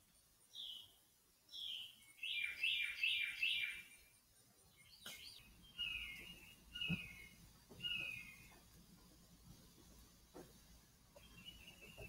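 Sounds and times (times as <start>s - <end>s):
high falling bird chirp: 0.5s - 8.7s, 11.2s - 12.0s.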